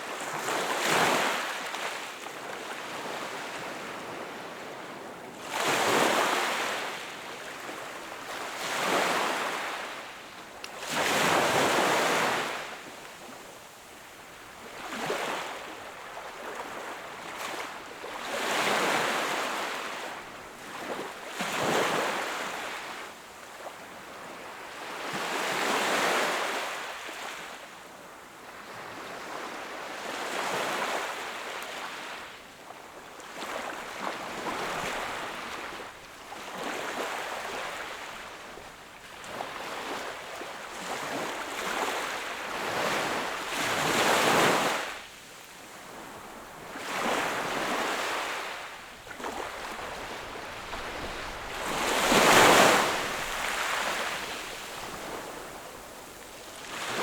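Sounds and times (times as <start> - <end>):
sea waves breaking on shore: 45.7 - 57.0
large waves crashing: 49.4 - 56.1.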